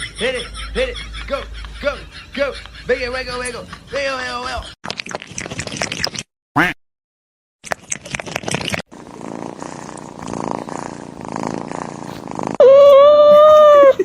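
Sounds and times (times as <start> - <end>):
cat purring: 8.9 - 12.6
high held cat cry: 12.6 - 14.0.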